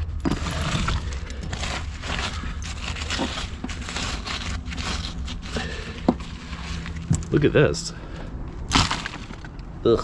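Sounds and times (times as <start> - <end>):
debris rustling and scraping: 0.0 - 10.0.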